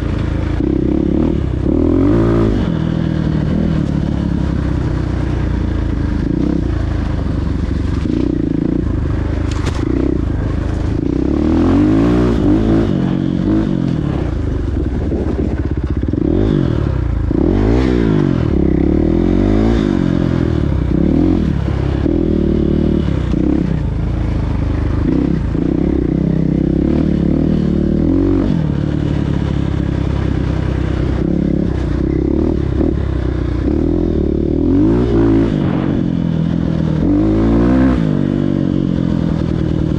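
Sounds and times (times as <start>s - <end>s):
motocross bikes revving past: 7.8s - 14.4s, 24.9s - 39.9s.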